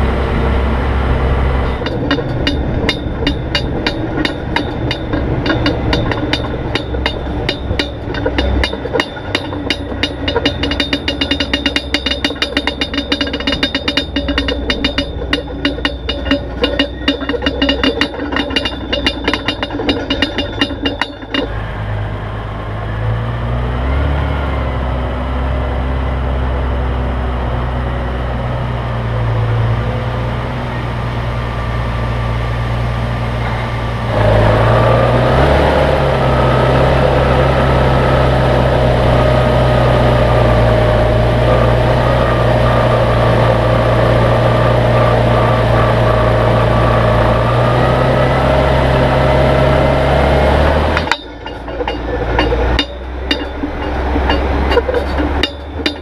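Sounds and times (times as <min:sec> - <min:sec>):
steady whine: 0:00.0 - 0:23.1, 0:27.2 - 0:56.0
engine running steadily: 0:00.0 - 0:56.0.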